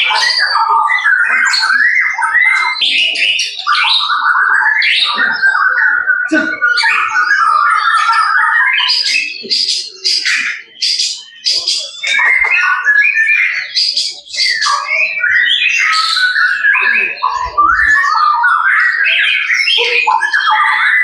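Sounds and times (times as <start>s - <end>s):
songbird singing: 0.0s - 21.0s.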